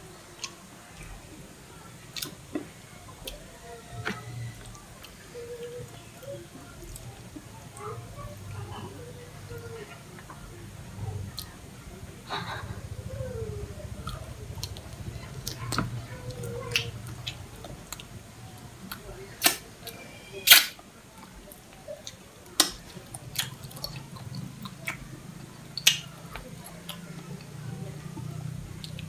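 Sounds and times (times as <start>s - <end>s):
low steady hum: 0.0s - 29.0s
mouth chewing sounds: 13.8s - 29.0s.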